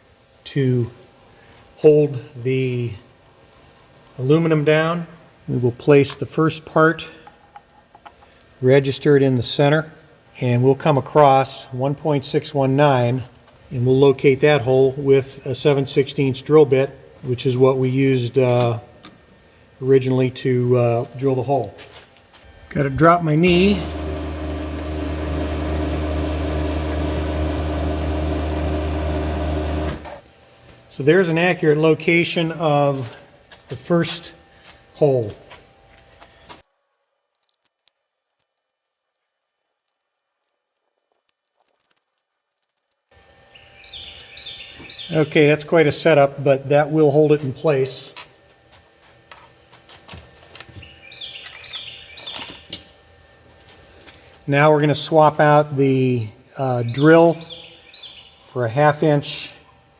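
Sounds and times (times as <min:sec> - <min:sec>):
machine motor hum: 0:22.5 - 0:30.3
bird chirping: 0:43.5 - 0:45.2, 0:50.8 - 0:52.7, 0:56.9 - 0:58.4.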